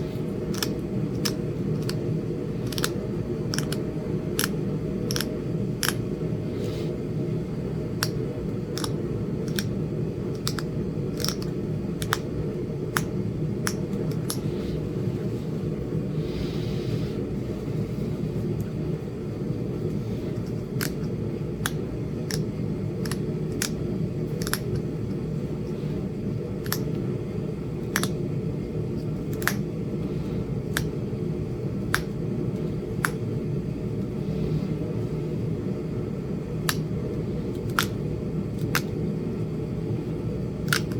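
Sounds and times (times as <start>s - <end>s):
steady low hum: 0.0s - 40.9s
tool clicking on stone: 0.5s - 2.0s, 2.6s - 6.1s, 8.0s - 12.3s, 13.0s - 14.5s, 20.8s - 23.8s, 24.4s - 24.9s, 28.0s - 28.2s, 29.3s - 29.6s, 40.7s - 40.9s.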